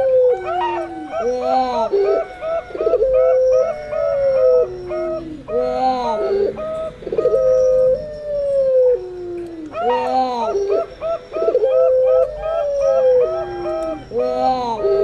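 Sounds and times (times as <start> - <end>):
dove long falling coos: 0.0 - 15.0
dove short repeated coos: 0.0 - 15.0.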